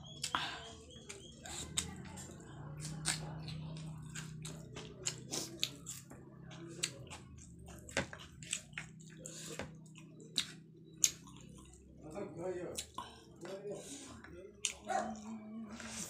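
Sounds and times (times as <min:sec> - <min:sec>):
chewing and wet mouth smacks: 0:01.1 - 0:02.1, 0:02.7 - 0:11.9, 0:12.7 - 0:13.2, 0:14.6 - 0:15.3.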